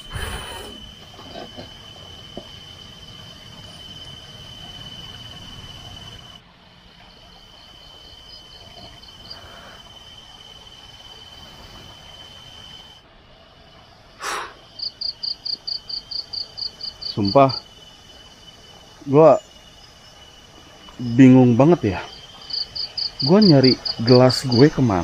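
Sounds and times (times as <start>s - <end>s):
insect rapid chirping pulses: 0.0s - 25.0s
high-pitched cricket-like trill: 14.2s - 25.0s.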